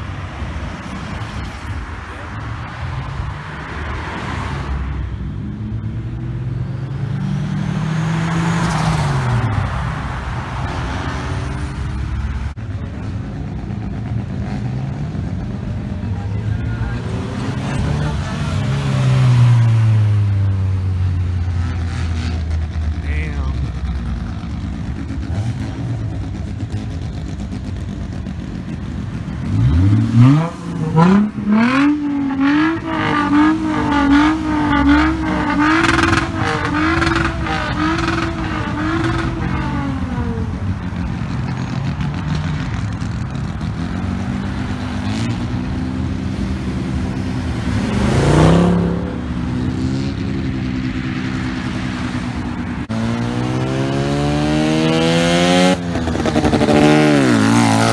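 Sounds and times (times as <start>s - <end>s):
car engine revving: 0.0s - 57.9s
steady engine drone: 22.5s - 53.5s.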